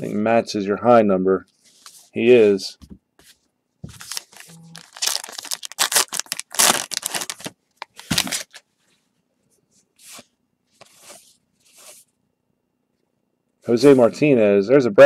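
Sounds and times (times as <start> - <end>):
card pack wrapper tearing: 4.0 - 8.6.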